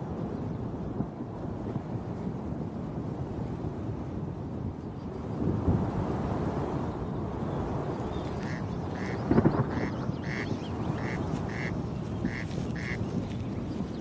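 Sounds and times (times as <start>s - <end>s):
wind rumble: 0.0s - 14.0s
corncrake rasping call: 8.4s - 13.0s.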